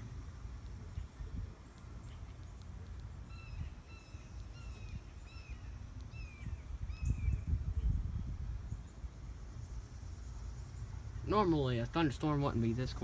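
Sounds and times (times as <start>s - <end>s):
low outdoor rumble: 0.0s - 13.0s
bird calling: 2.0s - 8.1s.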